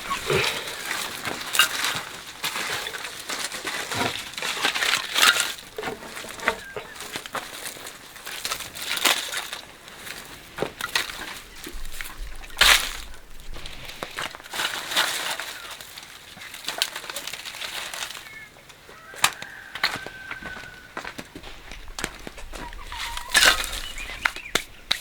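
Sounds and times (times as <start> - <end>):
chicken calling: 0.0 - 1.4, 5.8 - 8.0, 18.2 - 24.9
rustling scraping and knocking: 0.0 - 18.5, 19.2 - 25.0
loud crunch: 0.0 - 25.0.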